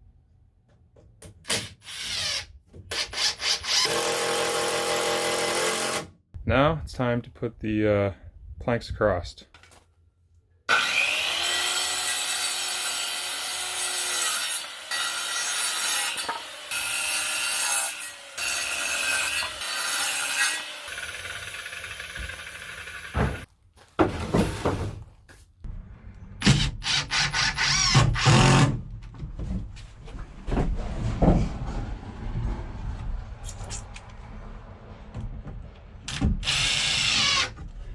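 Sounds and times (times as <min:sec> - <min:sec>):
power saw cutting lumber: 0:10.7 - 0:23.5.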